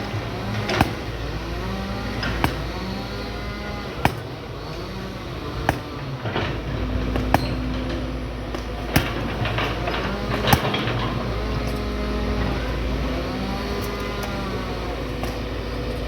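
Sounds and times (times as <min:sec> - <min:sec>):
excavator diesel engine running: 0:00.0 - 0:16.0
sharp knocks: 0:00.6 - 0:02.9, 0:05.6 - 0:12.4.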